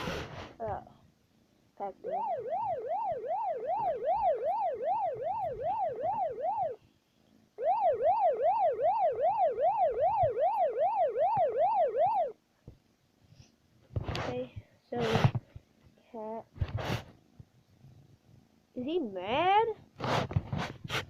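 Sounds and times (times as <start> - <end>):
electronic yelp siren: 1.9 - 6.8, 7.6 - 12.4.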